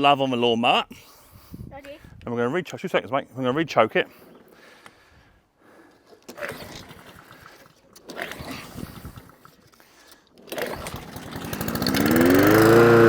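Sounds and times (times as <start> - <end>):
recoil starter cranking engine: 6.2 - 13.0
lawnmower engine firing: 10.4 - 13.0.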